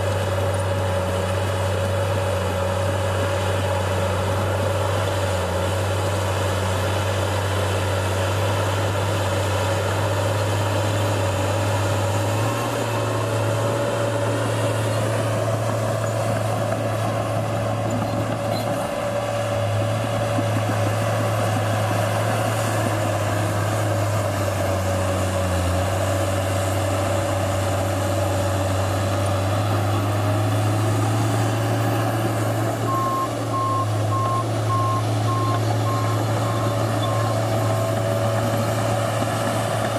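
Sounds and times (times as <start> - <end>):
diesel engine running: 0.0 - 39.9
reversing alarm beeping: 32.9 - 37.4.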